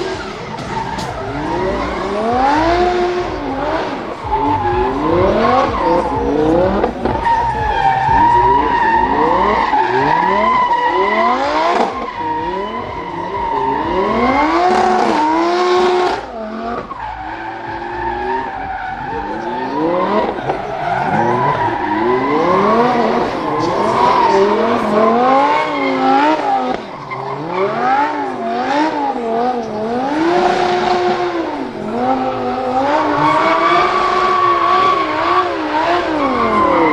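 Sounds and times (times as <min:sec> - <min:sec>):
car engine revving hard: 0:00.0 - 0:36.9
tyre squeal: 0:00.0 - 0:36.9.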